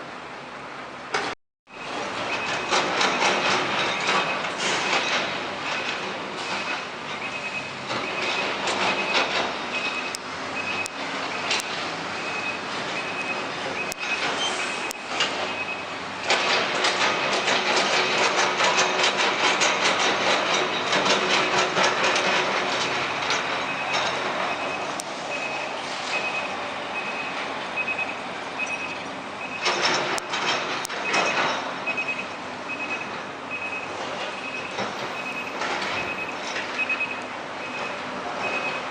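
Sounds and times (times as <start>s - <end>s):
truck diesel engine throbbing: 1.7s - 38.9s
high electronic beeping: 6.6s - 9.1s, 24.5s - 29.6s.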